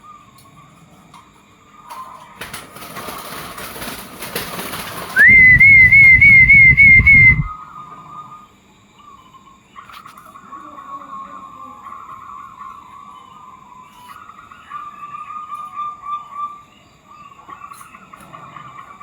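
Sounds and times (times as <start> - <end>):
doves cooing: 1.7 - 7.5
loud wavering whistle: 5.2 - 7.6.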